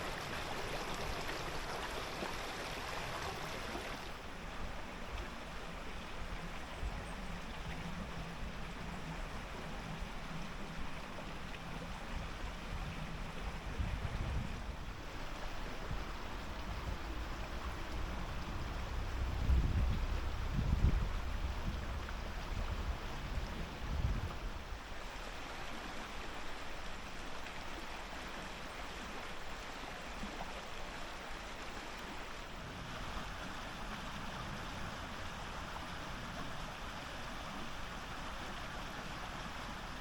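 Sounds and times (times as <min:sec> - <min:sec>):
running water rushing: 0:00.0 - 0:40.0
wind buffeting microphone: 0:06.2 - 0:24.8.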